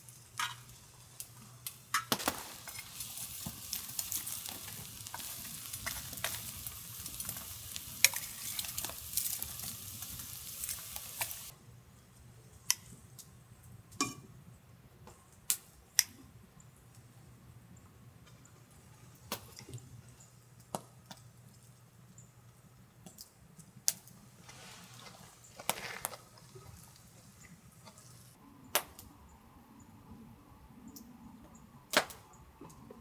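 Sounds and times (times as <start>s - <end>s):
food sizzling on a griddle: 0.0s - 11.5s.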